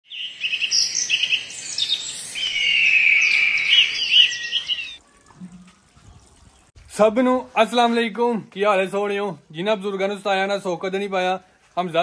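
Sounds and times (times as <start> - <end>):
birds chirping and trilling: 0.0 - 5.3
long high bird whistle: 0.5 - 5.0.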